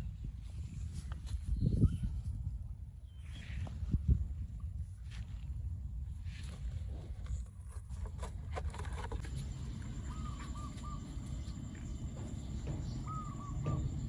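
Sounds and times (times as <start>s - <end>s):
bird calling: 9.4s - 14.0s.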